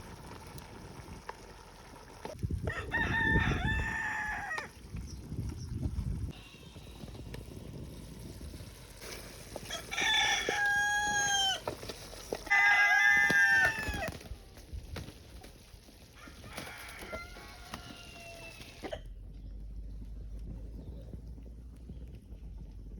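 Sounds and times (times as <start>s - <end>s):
rooster crowing: 2.6s - 4.7s, 9.7s - 11.6s, 12.5s - 14.1s, 16.2s - 19.0s.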